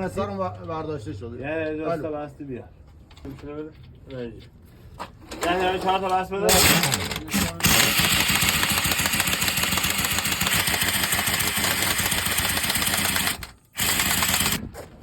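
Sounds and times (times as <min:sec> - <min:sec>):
rapid mechanical rattle of power tool: 0:06.5 - 0:14.7.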